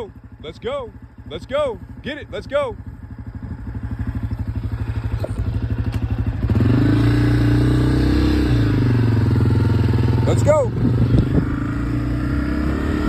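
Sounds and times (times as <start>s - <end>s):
motorcycle engine pulling away: 2.9s - 13.0s.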